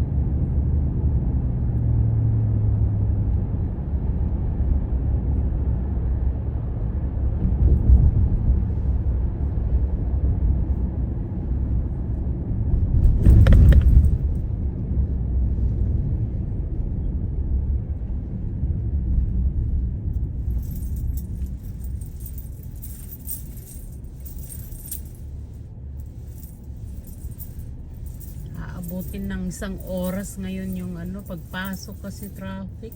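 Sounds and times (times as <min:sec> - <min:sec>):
vehicle rumble: 0:00.0 - 0:32.9
light metallic jingling: 0:20.4 - 0:32.9.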